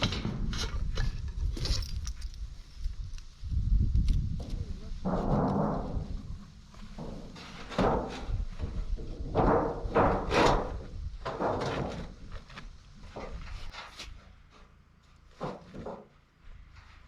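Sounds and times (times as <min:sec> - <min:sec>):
demolition knocks and thuds on wood: 0:04.4 - 0:13.7, 0:15.3 - 0:16.2.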